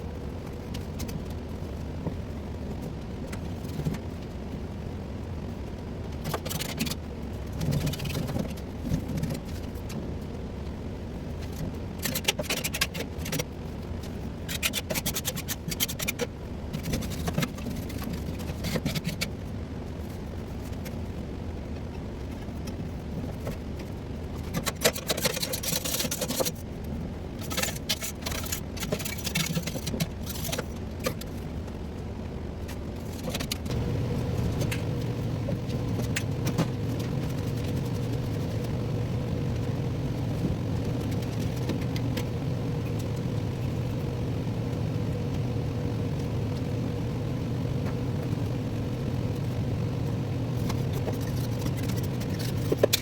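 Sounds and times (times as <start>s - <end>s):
steady machine hum: 0.0s - 53.0s
low hum: 28.3s - 53.0s.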